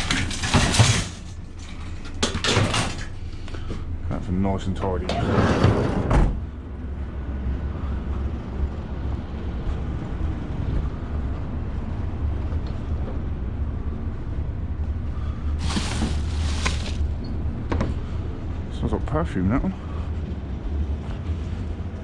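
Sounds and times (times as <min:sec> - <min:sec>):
van engine and road noise: 0:06.0 - 0:22.0.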